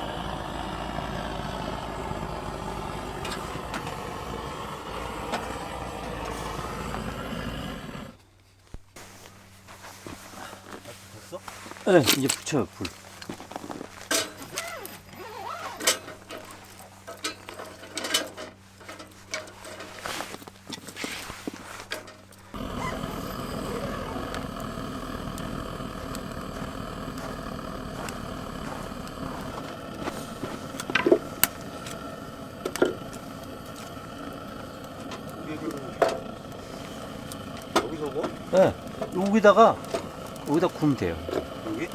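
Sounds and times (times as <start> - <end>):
rushing roar of flame: 0.0 - 8.2, 22.5 - 41.9.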